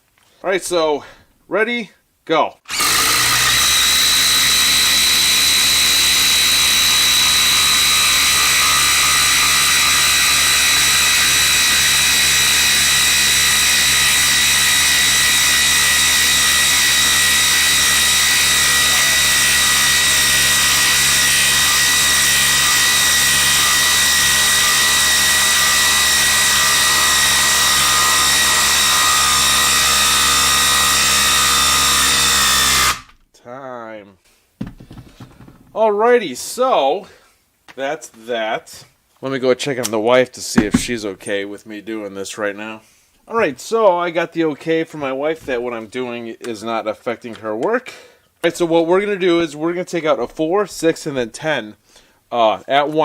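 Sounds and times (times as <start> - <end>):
impact driver whining under load: 2.7 - 33.2, 40.6 - 41.0.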